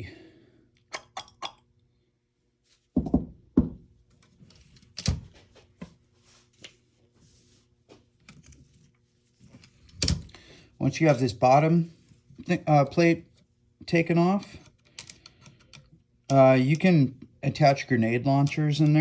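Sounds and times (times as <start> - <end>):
heavier knocks: 3.0 - 3.8
plastic parts clicking: 14.6 - 16.4.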